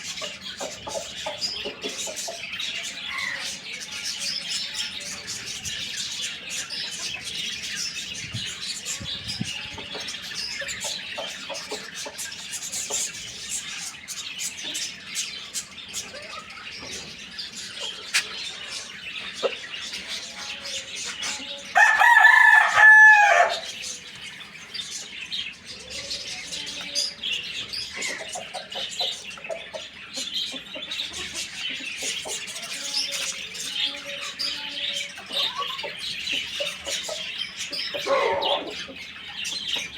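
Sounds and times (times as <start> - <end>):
hens clucking: 0.0 - 3.6, 8.4 - 13.4, 15.6 - 24.0, 25.8 - 39.9
small birds chirping: 0.0 - 39.9
rooster crowing: 21.7 - 23.7.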